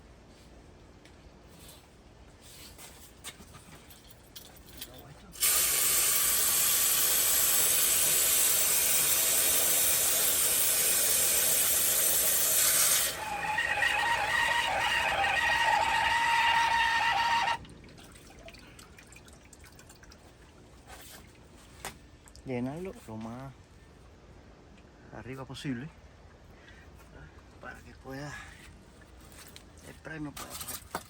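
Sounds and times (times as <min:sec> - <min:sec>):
water rushing from hose: 0:05.4 - 0:18.6.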